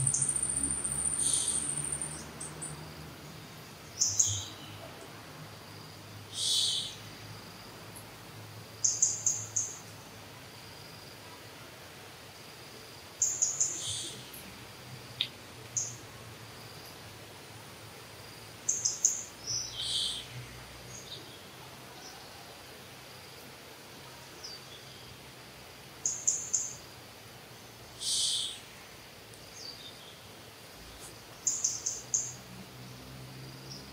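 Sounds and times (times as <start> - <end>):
birds chirping: 0.0 - 2.7, 6.3 - 7.1
faint forest hiss: 0.0 - 33.9.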